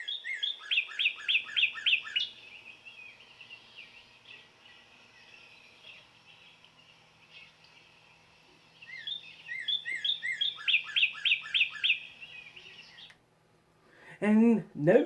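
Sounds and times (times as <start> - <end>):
down-slurred bird whistles: 0.0 - 2.3, 8.8 - 13.1
faint bird chirps: 0.0 - 13.2.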